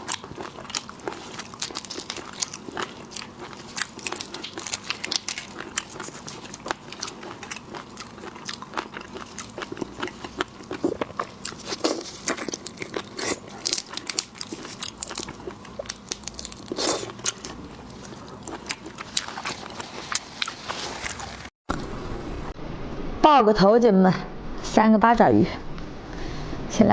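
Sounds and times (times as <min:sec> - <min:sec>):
crunchy bites and chewing: 0:00.0 - 0:21.5.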